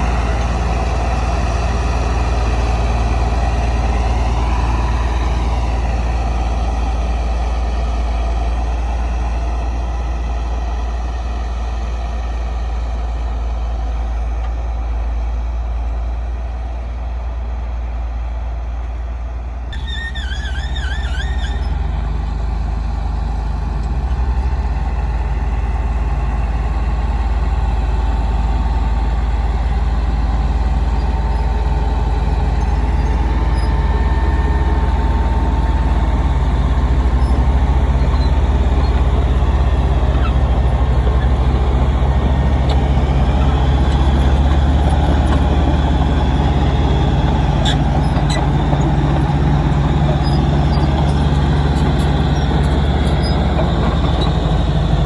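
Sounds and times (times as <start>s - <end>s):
heavy diesel engine rumbling: 0.0s - 55.0s
high-pitched squeal: 19.7s - 22.2s, 29.6s - 55.0s.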